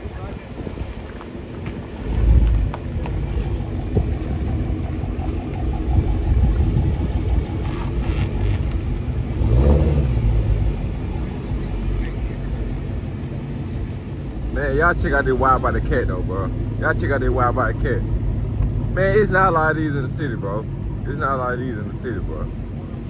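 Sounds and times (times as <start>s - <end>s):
car engine rumbling: 0.0s - 23.0s.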